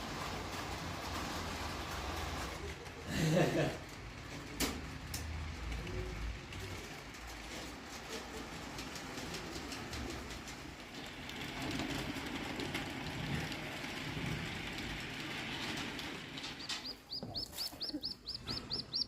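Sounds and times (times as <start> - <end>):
background rush: 0.0 - 19.0
bird chirping rapidly: 16.6 - 19.0.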